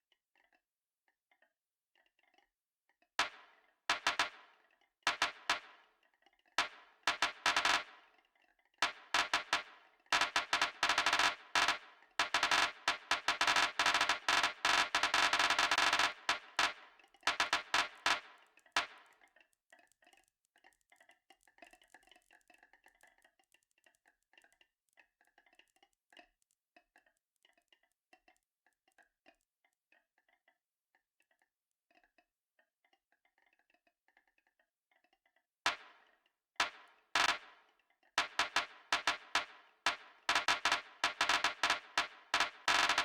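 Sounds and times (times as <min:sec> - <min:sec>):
marbles rattling down track: 0:10.2 - 0:18.2, 0:38.2 - 0:43.0.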